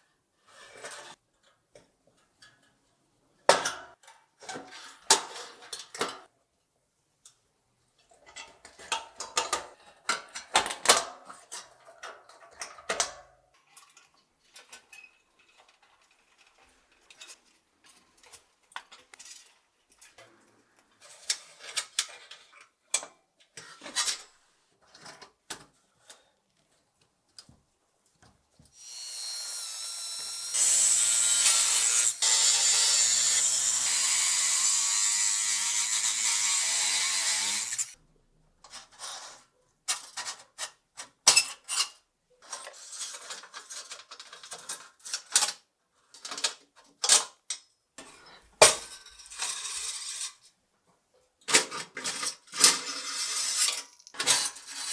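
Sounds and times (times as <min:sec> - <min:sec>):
hand tool clicks and scrapes: 0:13.7 - 0:22.6
power tool running: 0:28.8 - 0:38.0.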